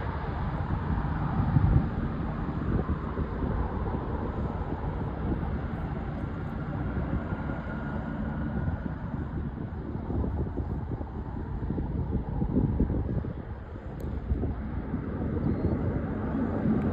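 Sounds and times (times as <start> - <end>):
jet engines roaring: 0.0 - 16.9
wind buffeting microphone: 0.0 - 16.9.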